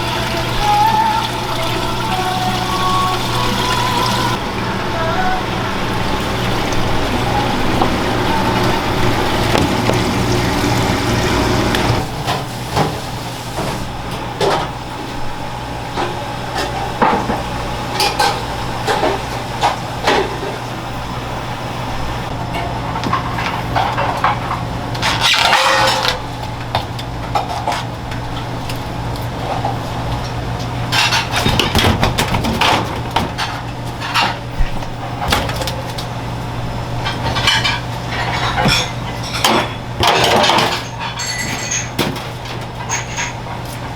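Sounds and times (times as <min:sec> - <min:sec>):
dishes and utensils clinking: 0:30.9 - 0:35.8, 0:37.0 - 0:43.8.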